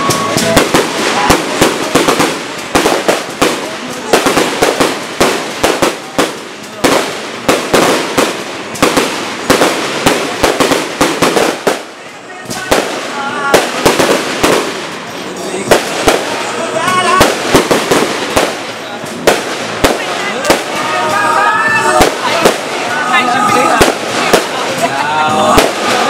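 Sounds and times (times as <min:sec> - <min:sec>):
firework bangs: 0:00.0 - 0:26.0
fireworks crackle and hiss: 0:00.0 - 0:26.0.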